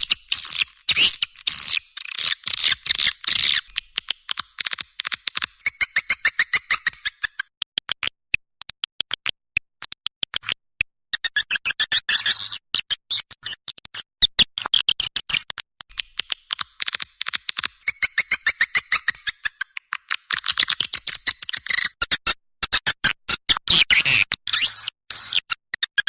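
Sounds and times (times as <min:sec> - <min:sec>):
sharp clicks: 0:00.0 - 0:11.5, 0:13.7 - 0:22.0.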